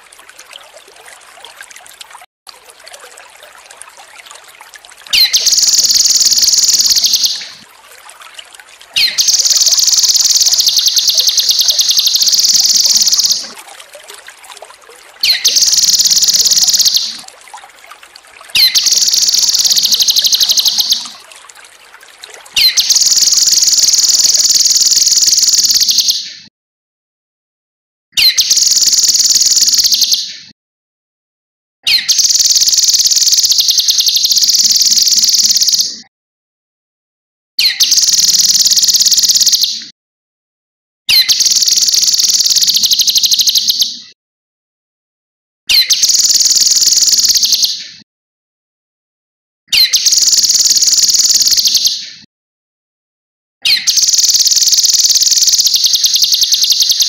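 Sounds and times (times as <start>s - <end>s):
faint trickle of water: 0.0s - 26.0s, 28.4s - 30.0s, 32.0s - 35.8s, 37.8s - 39.6s, 41.2s - 43.8s, 45.9s - 47.5s, 50.0s - 51.6s
songbird chattering: 9.0s - 13.5s, 18.6s - 21.1s.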